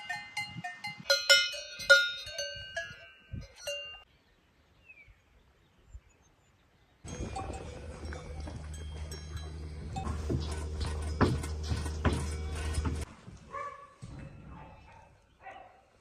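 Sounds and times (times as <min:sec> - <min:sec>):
cowbells clanking: 0:00.0 - 0:04.1, 0:07.1 - 0:13.1.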